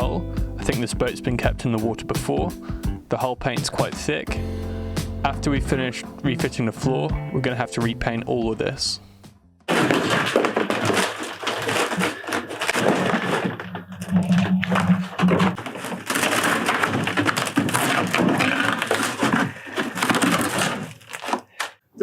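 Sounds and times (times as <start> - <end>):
wet plywood cracking and breaking: 9.7 - 21.8.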